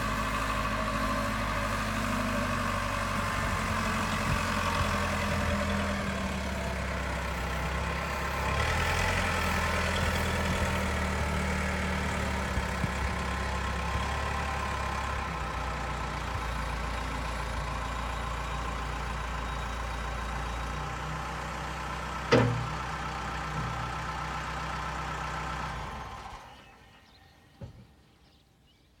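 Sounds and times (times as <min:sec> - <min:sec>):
diesel engine idling: 0:00.0 - 0:27.1
engine shutting off: 0:00.0 - 0:27.6
sharp clunk: 0:22.3 - 0:22.8.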